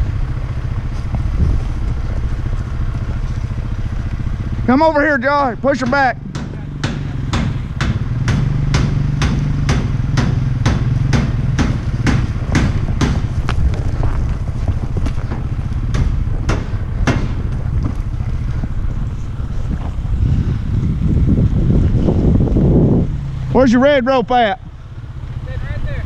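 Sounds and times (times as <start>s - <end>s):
engine humming: 0.0s - 26.0s
sharp regular clicks: 5.7s - 13.9s.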